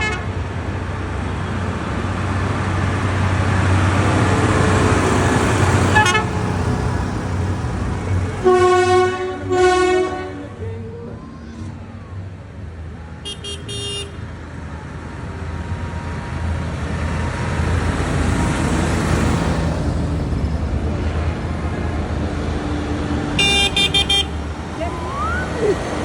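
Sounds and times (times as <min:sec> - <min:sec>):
truck engine rumbling: 0:00.0 - 0:26.0
truck horn toots: 0:05.9 - 0:06.5, 0:08.4 - 0:10.4, 0:13.3 - 0:14.2, 0:23.4 - 0:24.4.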